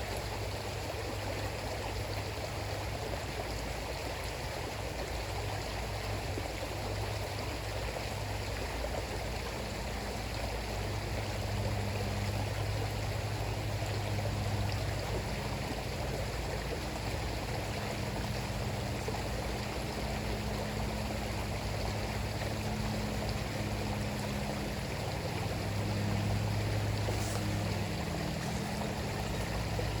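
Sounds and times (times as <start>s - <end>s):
river water rushing: 0.0s - 30.0s
low hum: 8.9s - 30.0s.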